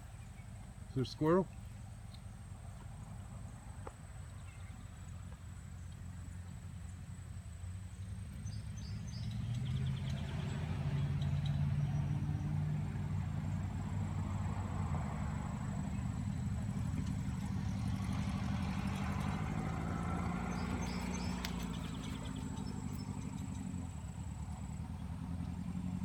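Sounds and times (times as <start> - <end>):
motor engine humming: 11.9 - 26.0.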